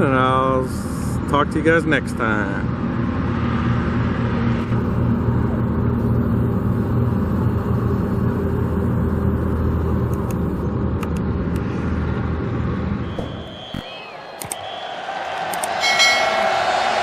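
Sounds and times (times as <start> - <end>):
car engine running: 2.2 - 14.2.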